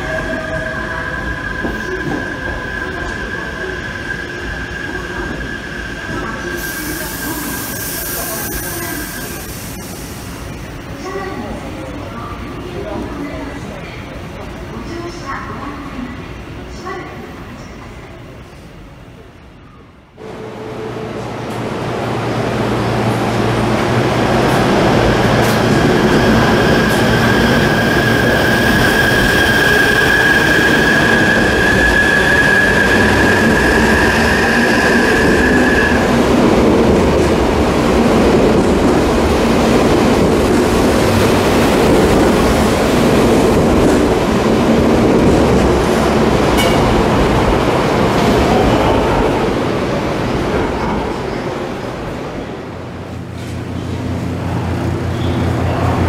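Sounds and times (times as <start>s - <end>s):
electric train running past: 20.2s - 56.0s.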